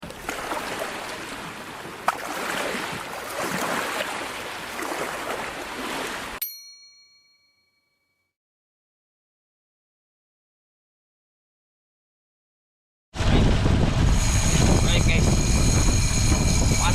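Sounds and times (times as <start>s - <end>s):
sea water rushing: 0.0s - 6.4s
wind: 0.0s - 7.2s, 13.2s - 16.9s
bell-like ding: 6.4s - 8.3s.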